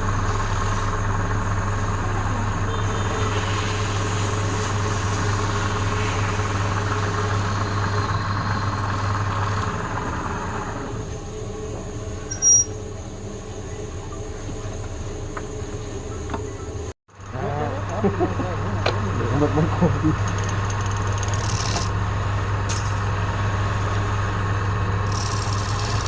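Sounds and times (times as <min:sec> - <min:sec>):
wood lathe motor hum: 0:00.0 - 0:26.0
short high-pitched chirp: 0:12.3 - 0:12.8.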